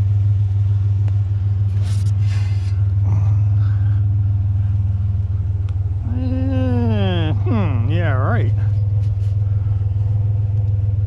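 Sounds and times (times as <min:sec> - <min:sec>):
truck engine exhaust drone: 0:00.0 - 0:11.0.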